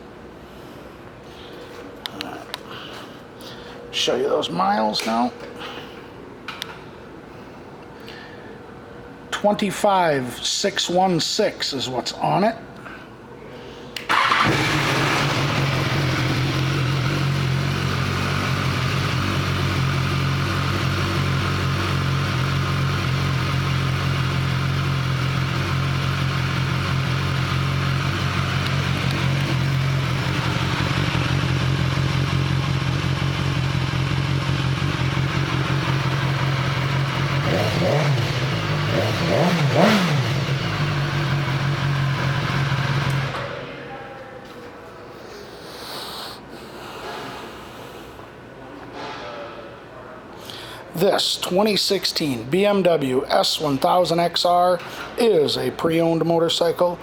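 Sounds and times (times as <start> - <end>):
engine throttle blips: 14.0 - 43.7
motorcycle engine starting and idling: 14.0 - 43.9.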